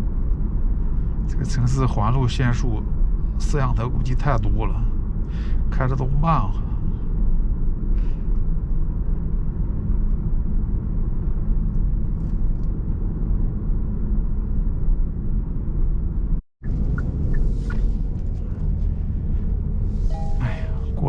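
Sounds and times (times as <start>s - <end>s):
car engine and tyres rumbling: 6.8s - 21.0s.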